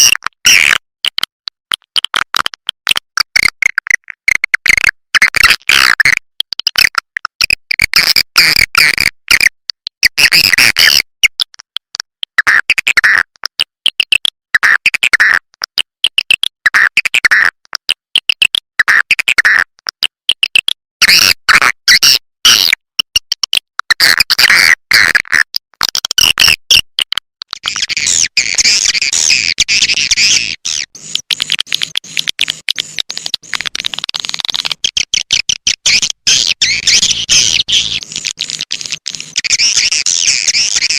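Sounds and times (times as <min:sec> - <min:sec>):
high twittering chirps and clicks: 0:27.5 - 0:40.9.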